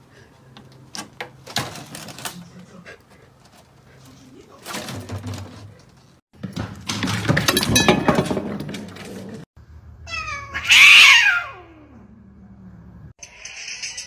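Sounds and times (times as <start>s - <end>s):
clattering and knocking: 1.0s - 2.5s, 3.1s - 9.5s
cat meowing: 10.0s - 12.0s.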